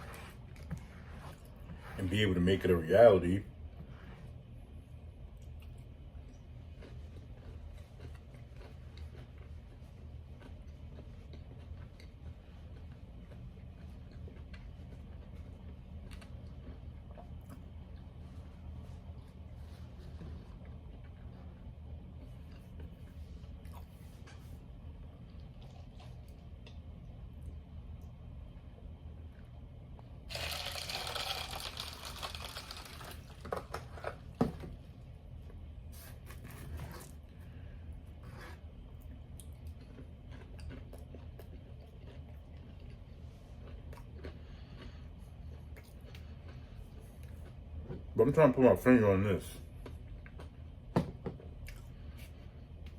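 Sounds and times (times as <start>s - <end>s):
low steady hum: 0.0s - 52.9s
person chewing: 5.4s - 18.2s, 19.0s - 27.0s, 38.1s - 48.1s, 51.5s - 52.9s
packaging crinkling: 30.3s - 33.8s.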